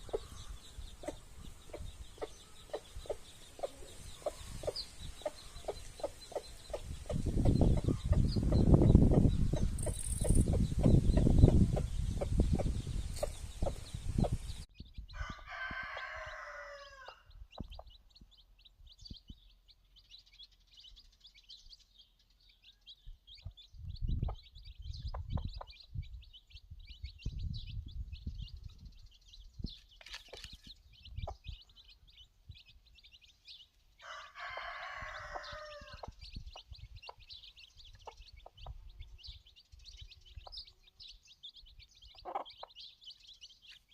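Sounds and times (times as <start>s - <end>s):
chicks chirping: 0.0s - 43.9s
cockerel crowing: 15.2s - 17.3s, 34.0s - 36.0s.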